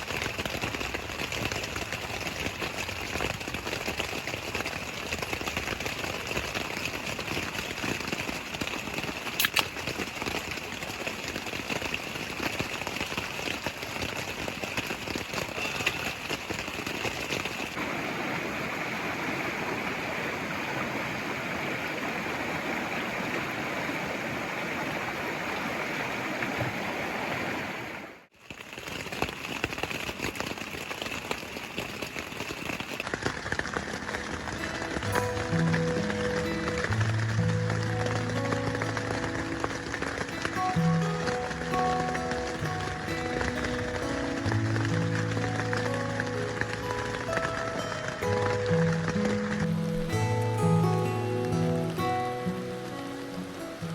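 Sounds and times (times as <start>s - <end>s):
mountain stream rushing: 0.0s - 53.9s
steady rain falling: 0.0s - 53.9s.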